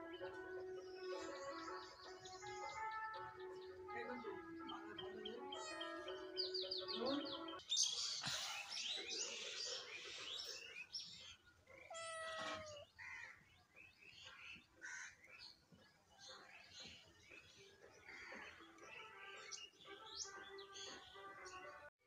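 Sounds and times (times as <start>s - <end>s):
soft background music: 0.0s - 7.6s, 16.1s - 21.9s
birds chirping: 0.0s - 21.9s
cat meowing: 5.5s - 6.4s, 11.8s - 12.9s.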